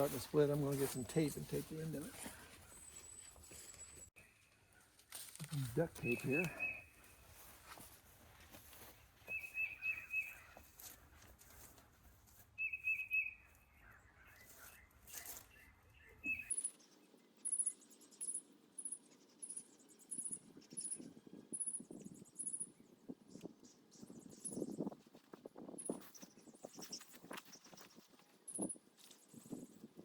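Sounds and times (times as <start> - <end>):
birds chirping: 0.0 - 4.8, 5.4 - 7.9, 8.8 - 11.2, 12.6 - 25.0
thin high bird chirp: 5.5 - 7.5, 9.3 - 10.6, 12.6 - 25.0.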